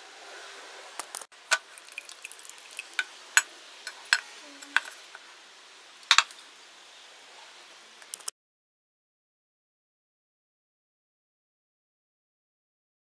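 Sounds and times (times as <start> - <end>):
metal tools clinking: 1.5 - 5.2.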